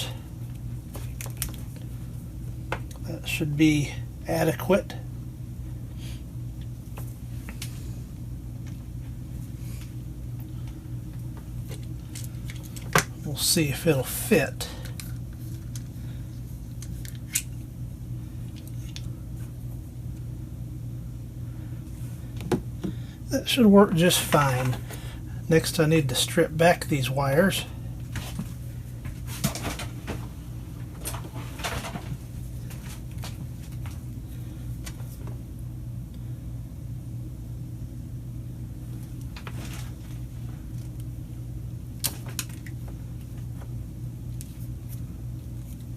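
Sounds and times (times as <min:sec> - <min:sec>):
steady low hum: 0:00.0 - 0:45.9
cord handling clicks and rustles: 0:00.4 - 0:03.1, 0:09.8 - 0:13.5, 0:14.8 - 0:17.7, 0:28.0 - 0:34.2, 0:38.9 - 0:41.2, 0:42.0 - 0:45.9.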